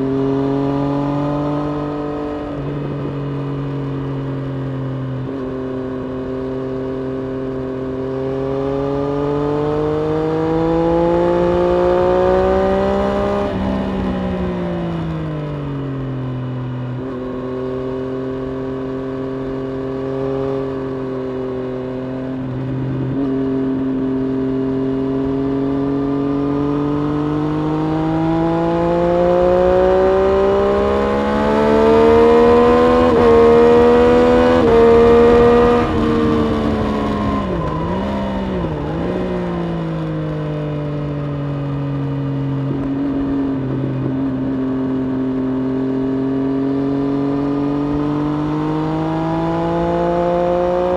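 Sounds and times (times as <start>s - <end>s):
motorcycle engine revving: 0.0s - 50.9s
wind rushing: 29.6s - 40.0s.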